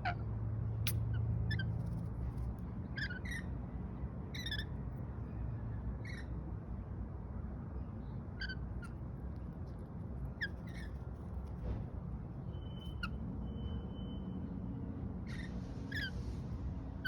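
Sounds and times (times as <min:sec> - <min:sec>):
lorikeet chirps: 0:04.4 - 0:04.8, 0:15.3 - 0:16.2.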